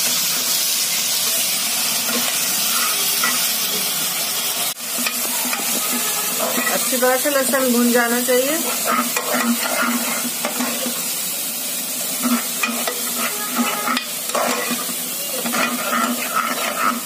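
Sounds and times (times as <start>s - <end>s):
onions sizzling in hot oil: 0.0s - 17.0s
metal ladle scraping pot: 5.0s - 7.5s, 8.7s - 11.0s, 12.2s - 17.0s.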